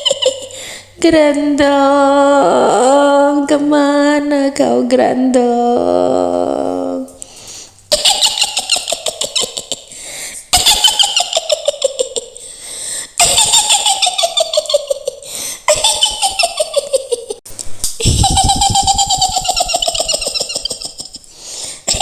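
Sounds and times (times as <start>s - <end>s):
shrill witch's cackle: 0.0s - 0.6s, 7.9s - 12.5s, 13.2s - 17.4s, 18.0s - 21.3s.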